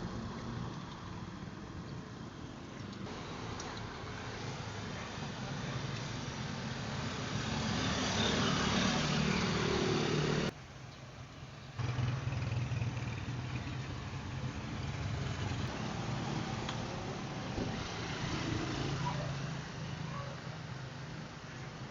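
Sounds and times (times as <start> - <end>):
vehicle engine running: 11.8 - 16.0.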